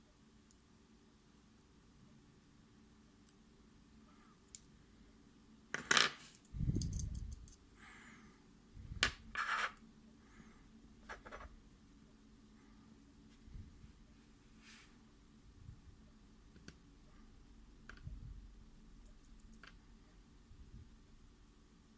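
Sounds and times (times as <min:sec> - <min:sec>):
metal lock parts clinking: 0:06.7 - 0:07.6.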